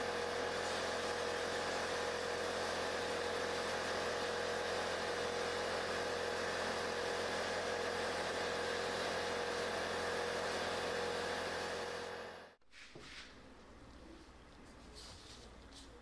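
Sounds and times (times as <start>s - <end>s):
machine humming: 0.0s - 12.6s.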